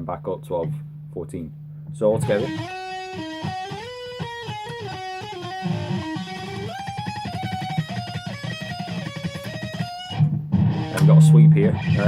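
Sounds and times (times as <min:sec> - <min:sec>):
electric guitar lead solo: 0:02.2 - 0:12.0.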